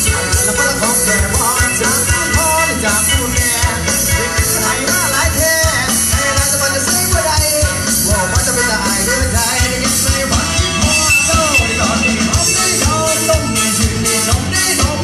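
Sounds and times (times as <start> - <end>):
steady drum beat: 3.5 - 14.8.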